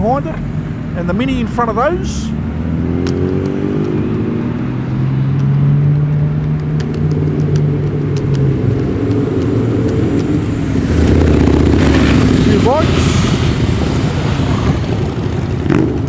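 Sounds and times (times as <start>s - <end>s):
car engines at low revs: 0.0s - 16.0s
light ticks: 6.1s - 10.4s.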